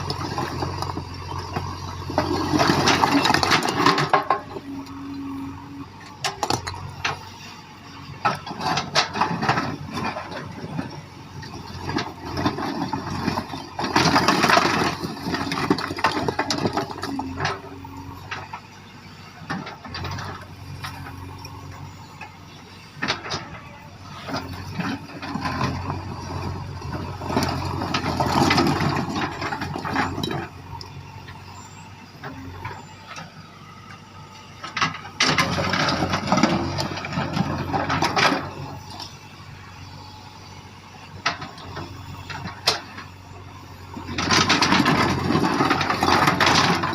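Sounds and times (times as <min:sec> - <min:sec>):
scraping and clattering through stones: 0:00.0 - 0:04.6, 0:08.2 - 0:18.5, 0:23.1 - 0:30.6, 0:44.0 - 0:46.9
diesel engine running: 0:00.0 - 0:46.9.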